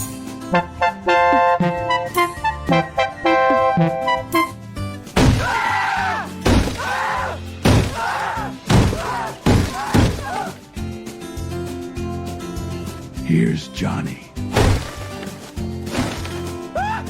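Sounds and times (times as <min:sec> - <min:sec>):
music with held notes: 0:00.0 - 0:05.2.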